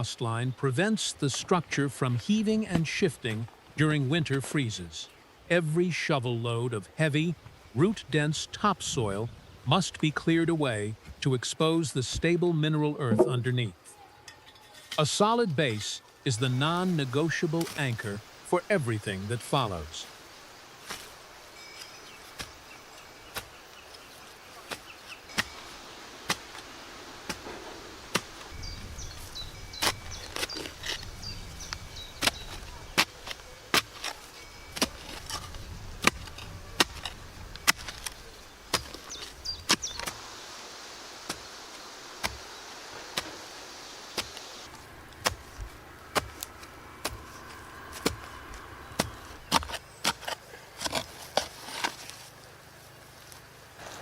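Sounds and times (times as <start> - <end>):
digging tool striking soil: 23.3 - 23.6, 24.6 - 26.6, 27.3 - 28.5, 29.7 - 40.2, 41.2 - 41.5, 42.2 - 42.4, 44.1 - 52.2.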